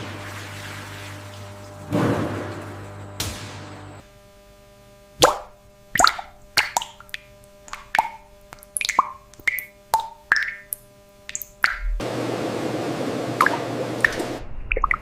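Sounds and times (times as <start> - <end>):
wet plops and drips: 5.2 - 12.0, 13.4 - 15.0.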